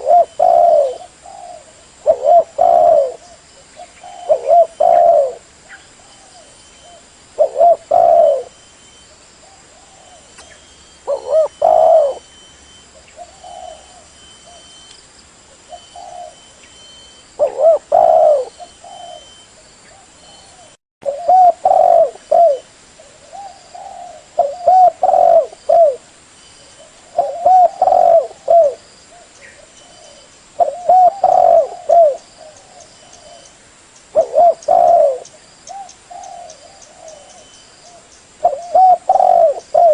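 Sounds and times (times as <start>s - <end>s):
dove cooing: 0.0s - 8.7s, 9.4s - 14.8s, 15.6s - 26.1s, 26.7s - 33.5s, 34.1s - 39.9s.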